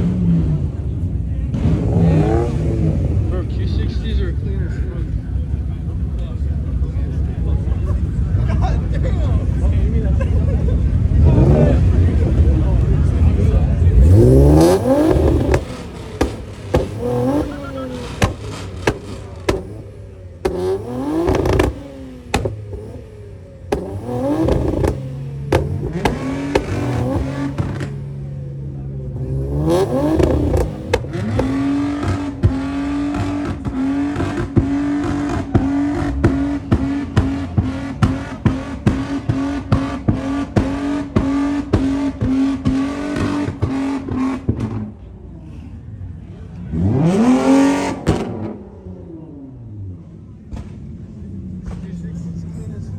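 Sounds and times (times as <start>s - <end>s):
car engine revving: 0.0s - 52.9s
exhaust pops and bangs: 12.0s - 44.9s, 47.8s - 48.6s, 50.3s - 52.4s.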